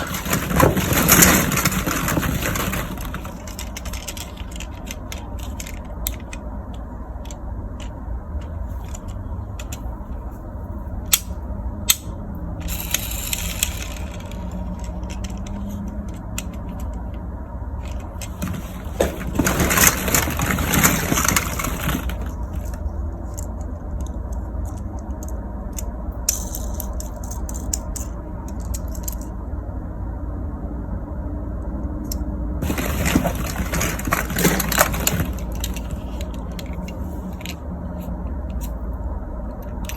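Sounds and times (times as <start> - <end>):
plastic toys clicking and rattling: 0.0 - 10.2, 11.1 - 29.4, 32.1 - 38.8, 39.5 - 39.9.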